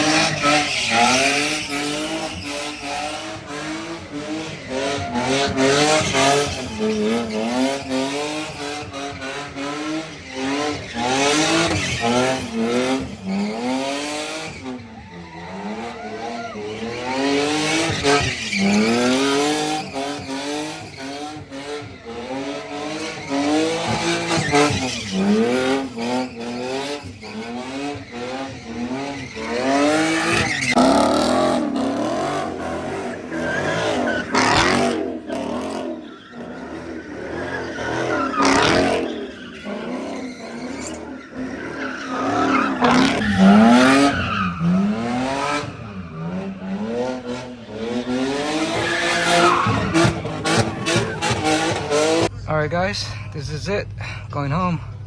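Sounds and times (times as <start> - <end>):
car engine revving hard: 0.0 - 52.3
tyres screeching: 0.0 - 52.3.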